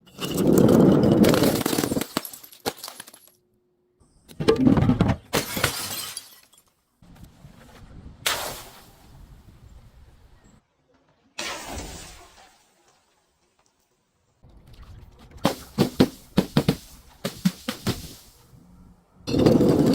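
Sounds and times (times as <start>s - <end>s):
glass breaking and crunching: 0.1s - 3.4s, 5.3s - 6.8s.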